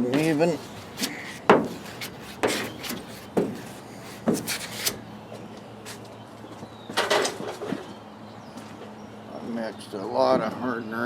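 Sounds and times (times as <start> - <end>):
spreader scraping body filler: 0.0 - 5.0.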